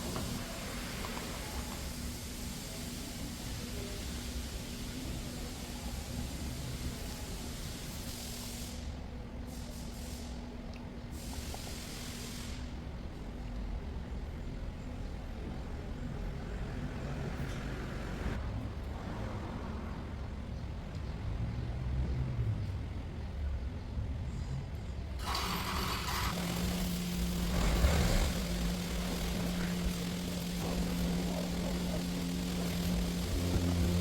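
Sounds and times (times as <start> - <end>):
hiss: 0.0 - 10.5, 11.1 - 12.8, 25.2 - 34.0
low mechanical rumble: 23.8 - 34.0.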